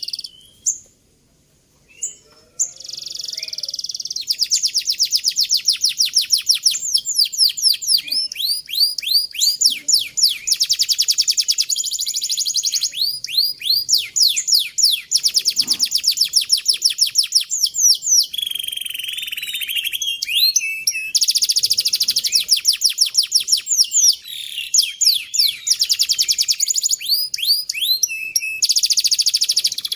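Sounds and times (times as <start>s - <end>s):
canary singing trills: 1.9s - 29.9s.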